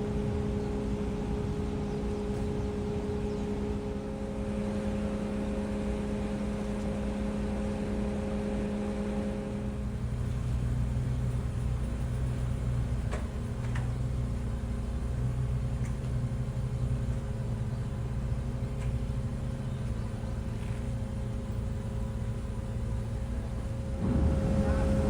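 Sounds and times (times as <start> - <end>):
ferry diesel engines rumbling: 0.0 - 25.0
faint ticks: 15.7 - 16.2, 18.6 - 19.2.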